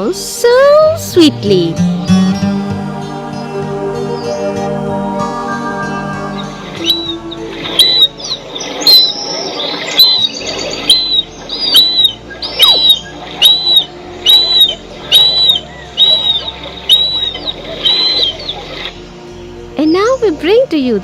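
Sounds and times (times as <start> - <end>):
soft background music: 0.0 - 21.0
bird of prey calling: 6.2 - 18.9.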